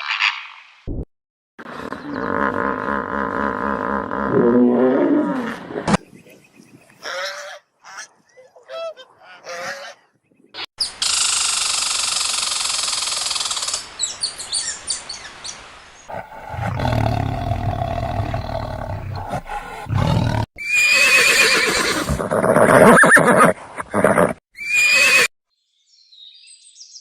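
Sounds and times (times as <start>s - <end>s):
big cat roaring: 16.1s - 20.5s.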